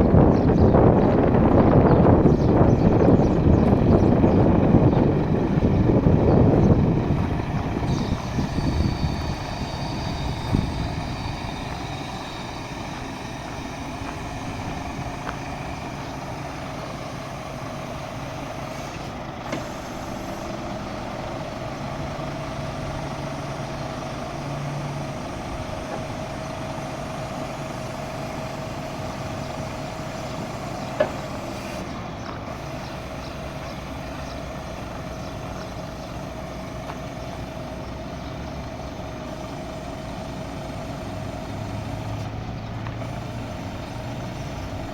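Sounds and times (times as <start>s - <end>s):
diesel truck engine running: 0.0s - 44.9s
thin steady whine: 5.6s - 20.6s.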